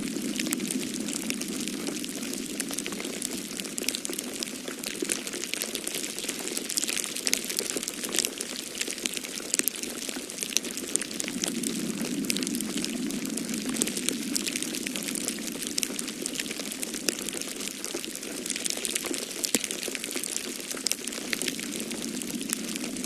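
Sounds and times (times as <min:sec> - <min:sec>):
storm wind rushing: 0:00.0 - 0:04.0, 0:11.0 - 0:17.3, 0:21.3 - 0:23.0
wood fire crackling: 0:00.0 - 0:23.0.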